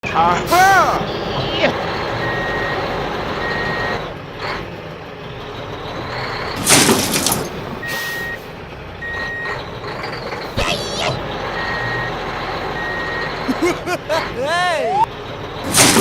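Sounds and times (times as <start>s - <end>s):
toy truck reversing beeper: 0.6s - 4.0s, 7.8s - 13.6s.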